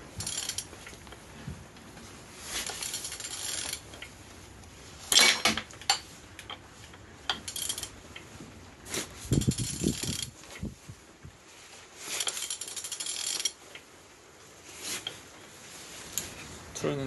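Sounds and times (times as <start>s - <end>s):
metallic clinks of engine turned by hand: 0.2s - 1.2s, 2.6s - 4.1s, 5.1s - 8.0s, 9.3s - 10.4s, 12.1s - 13.6s.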